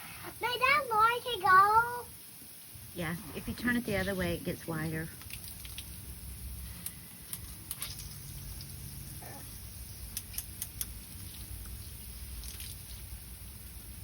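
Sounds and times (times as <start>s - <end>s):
low steady rumble: 1.8s - 14.0s
shower water pattering: 3.0s - 14.0s
sharp drip ticks: 5.1s - 6.2s, 6.8s - 13.4s.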